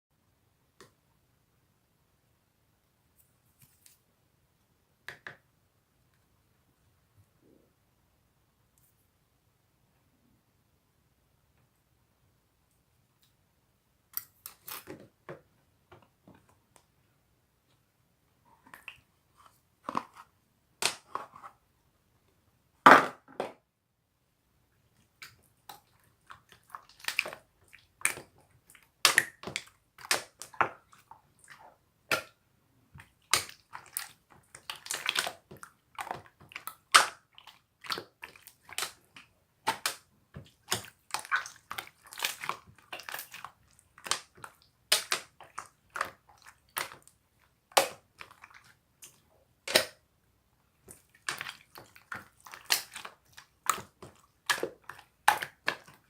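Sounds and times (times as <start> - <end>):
slime squelching and popping: 25.0 - 50.0, 50.8 - 56.0.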